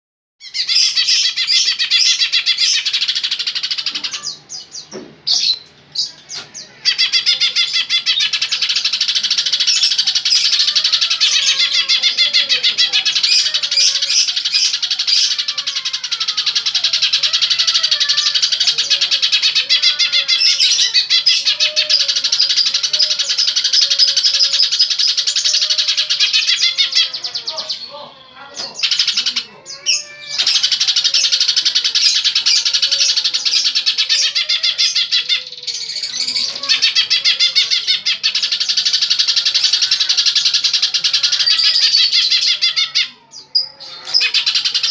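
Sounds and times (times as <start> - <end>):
birds chirping: 0.4 - 44.9.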